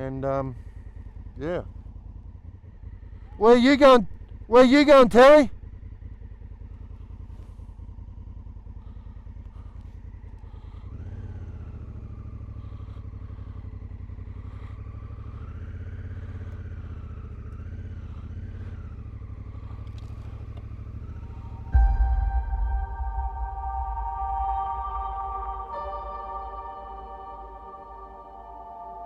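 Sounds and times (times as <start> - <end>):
motorcycle engine at low revs: 0.0 - 29.0
faint wavering whine: 19.9 - 29.0.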